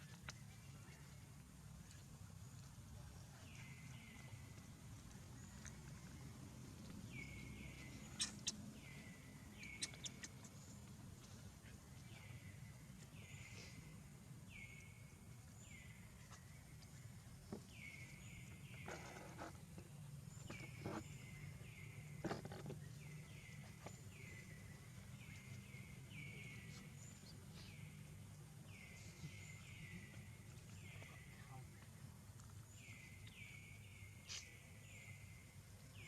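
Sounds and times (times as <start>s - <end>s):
faint animal chirps: 8.0s - 8.6s, 9.7s - 10.5s.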